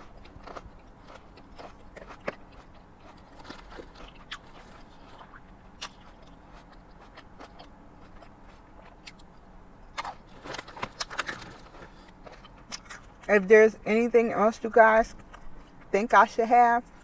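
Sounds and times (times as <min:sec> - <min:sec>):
person chewing: 0:00.0 - 0:13.3.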